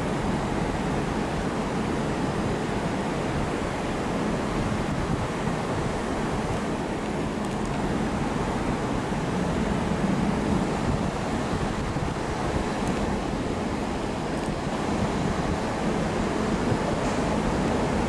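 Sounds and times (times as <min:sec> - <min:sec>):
railway station rumble and hiss: 0:00.0 - 0:18.0.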